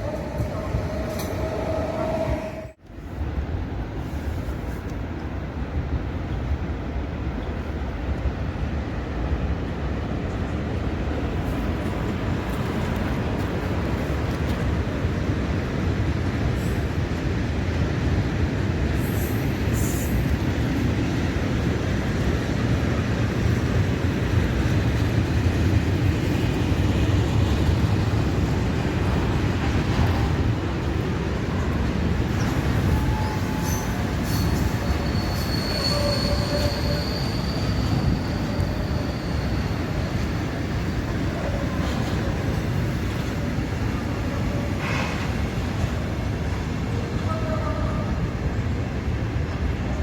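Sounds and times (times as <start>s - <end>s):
train wheels rumbling on rails: 0.0s - 50.0s
high wheel squeal: 32.4s - 41.0s.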